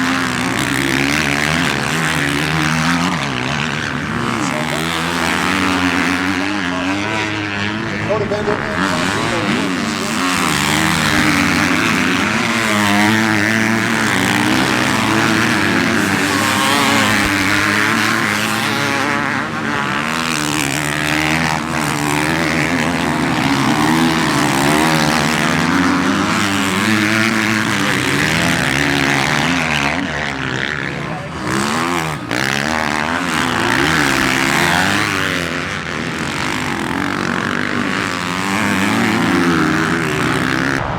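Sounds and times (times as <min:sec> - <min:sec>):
motocross bike engines racing: 0:00.0 - 0:40.9.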